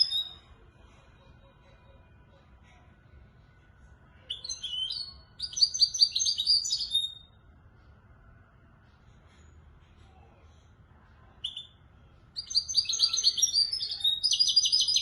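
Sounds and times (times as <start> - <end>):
faint low hum: 0.0 - 15.0
goldfinch singing: 4.3 - 7.3, 12.4 - 15.0.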